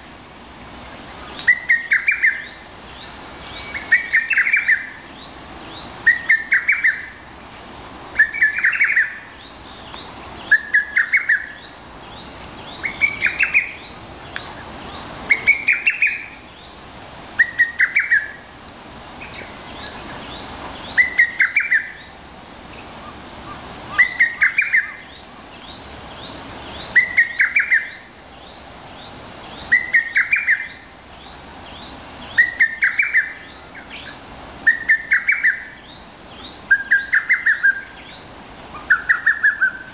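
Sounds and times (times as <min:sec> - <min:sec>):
faint steady hiss: 0:00.0 - 0:39.9
cuckoo calling: 0:01.4 - 0:02.6, 0:06.0 - 0:07.2, 0:17.4 - 0:18.4, 0:20.9 - 0:22.1, 0:23.0 - 0:25.1, 0:26.9 - 0:28.1, 0:29.7 - 0:30.8, 0:32.2 - 0:35.8, 0:36.6 - 0:38.0, 0:38.7 - 0:39.9.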